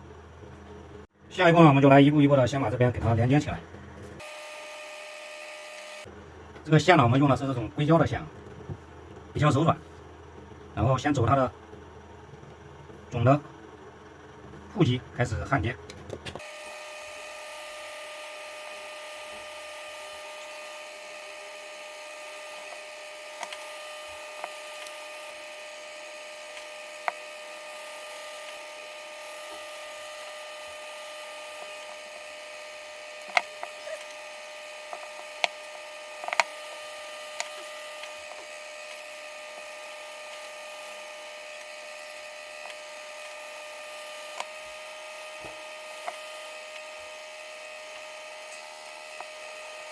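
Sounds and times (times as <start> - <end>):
electrical whine: 0.0 - 49.9.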